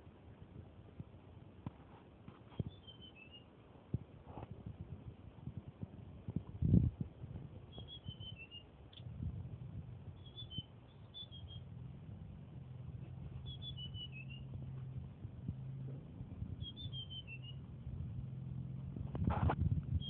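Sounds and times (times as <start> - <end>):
steady low hum: 0.0 - 20.0
songbird singing descending notes: 2.6 - 3.5, 7.7 - 9.1, 10.1 - 11.8, 13.2 - 14.6, 16.5 - 17.7.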